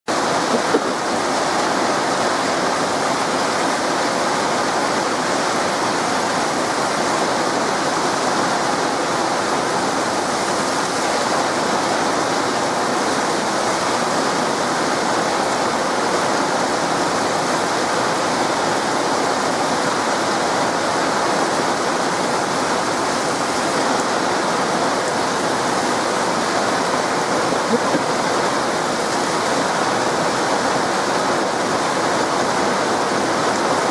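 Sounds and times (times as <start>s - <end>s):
heavy rain pouring: 0.1s - 33.9s.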